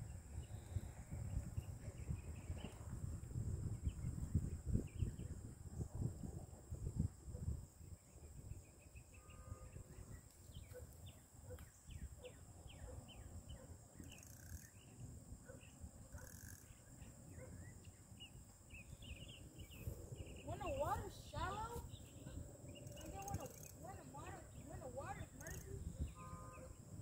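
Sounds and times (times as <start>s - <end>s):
insect drone: 0.0s - 27.0s
bird chirping: 8.0s - 26.8s.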